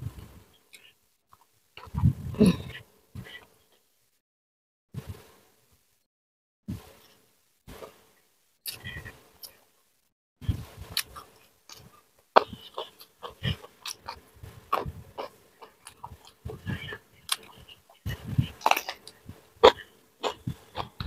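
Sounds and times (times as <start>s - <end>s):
person chewing crunchy food: 0.8s - 2.7s, 10.9s - 21.0s.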